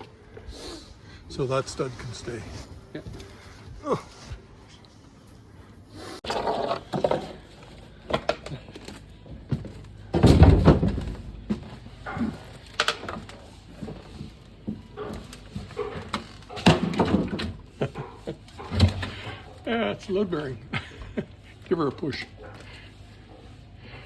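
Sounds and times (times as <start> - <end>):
wooden knocks and thuds: 8.1 - 17.7.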